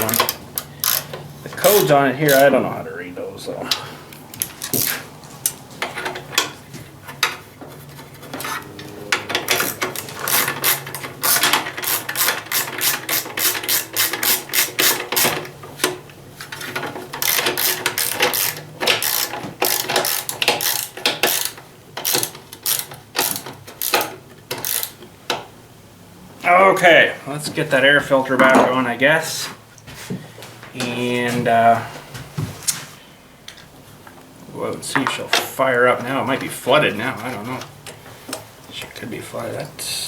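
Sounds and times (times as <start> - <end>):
socket ratchet clicking: 0.0 - 1.2, 9.5 - 15.4, 17.2 - 25.0.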